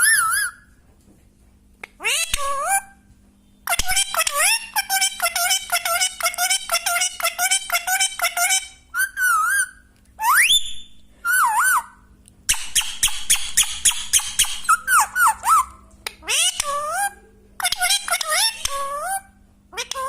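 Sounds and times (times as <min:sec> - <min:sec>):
parrot squawking: 0:00.0 - 0:00.7, 0:01.9 - 0:03.0, 0:03.7 - 0:10.6, 0:11.2 - 0:20.0
parrot whistling: 0:00.0 - 0:00.7, 0:03.7 - 0:19.2.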